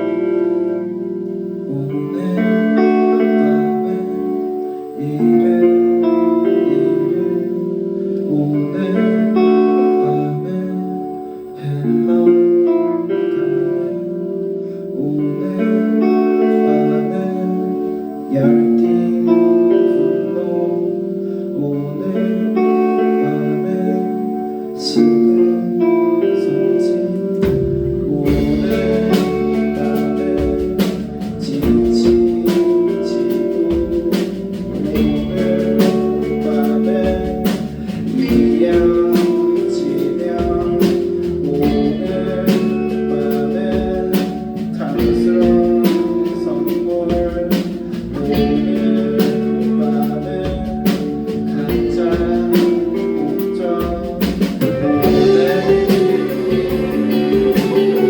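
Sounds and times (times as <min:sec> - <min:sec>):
guitars sustained chords: 0:00.0 - 0:58.0
rock band playing: 0:25.7 - 0:58.0
steady drum beat: 0:27.4 - 0:58.0.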